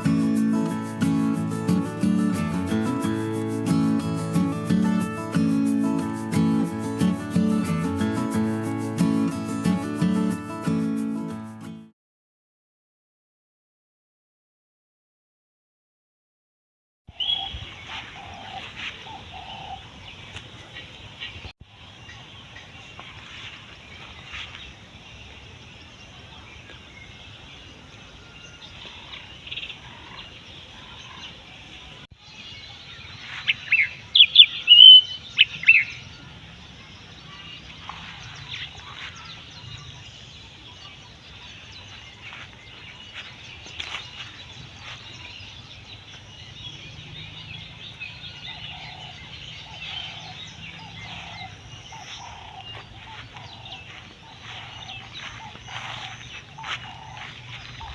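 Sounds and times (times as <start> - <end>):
high sliding bird calls: 33.4 - 36.0, 49.6 - 57.9.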